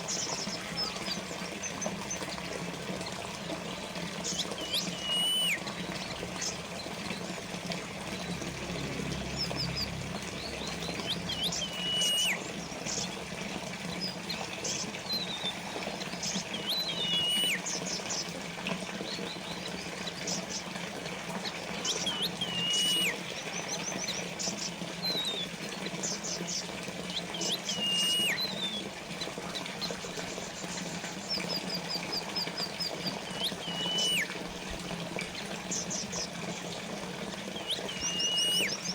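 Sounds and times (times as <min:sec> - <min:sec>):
water trickling and splashing: 0:00.0 - 0:38.9
bird trills: 0:04.2 - 0:06.6, 0:09.1 - 0:13.1, 0:13.9 - 0:18.2, 0:21.4 - 0:34.4, 0:37.4 - 0:38.9
songbird whistling: 0:04.3 - 0:06.1, 0:09.4 - 0:12.6, 0:15.1 - 0:17.8, 0:21.8 - 0:24.2, 0:27.1 - 0:28.9, 0:31.3 - 0:34.4, 0:37.5 - 0:38.9.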